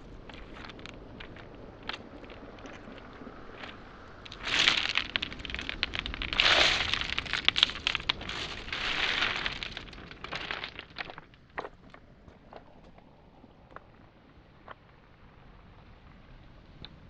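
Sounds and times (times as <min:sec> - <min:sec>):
footsteps on pebbles: 0:00.0 - 0:14.0
sharp stone clicks: 0:00.3 - 0:13.0.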